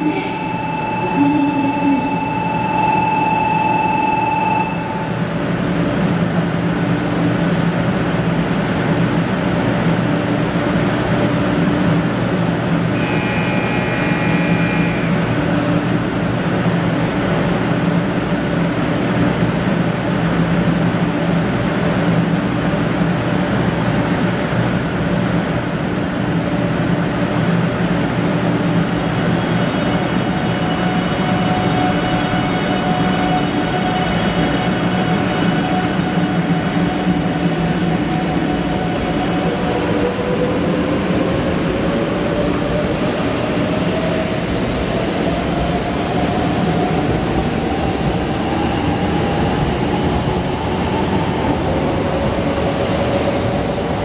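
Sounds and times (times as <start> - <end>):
short bright electronic tone: 0.0 - 5.2
held tone: 0.0 - 5.3, 13.0 - 15.5
train electric hum: 0.0 - 54.0.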